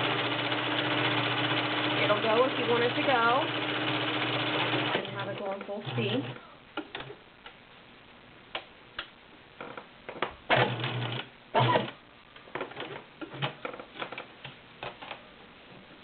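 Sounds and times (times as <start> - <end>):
sewing machine running: 0.0 - 6.4.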